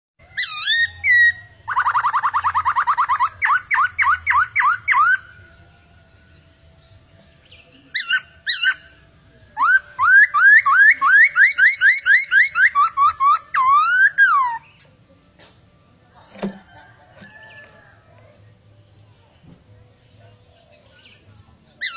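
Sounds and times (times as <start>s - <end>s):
bird whistling song: 0.2s - 14.9s, 20.6s - 21.9s.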